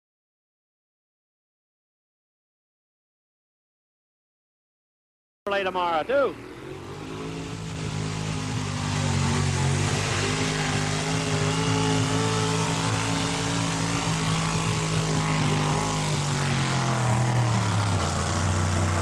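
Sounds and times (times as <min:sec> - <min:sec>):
truck engine at high revs: 0:05.8 - 0:19.0.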